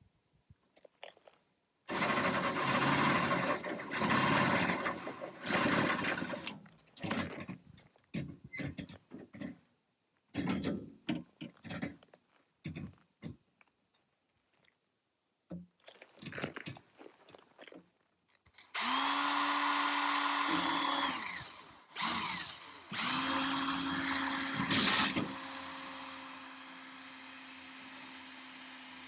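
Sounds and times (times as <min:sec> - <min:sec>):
power drill drilling into metal: 0:01.9 - 0:06.5, 0:18.7 - 0:29.0.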